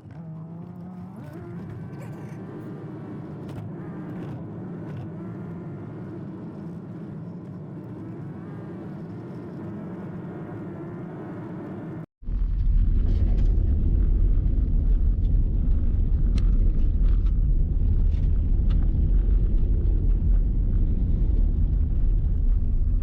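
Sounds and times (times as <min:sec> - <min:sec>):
road and tyre noise: 0:00.0 - 0:23.0
loud low rumble: 0:12.2 - 0:23.0.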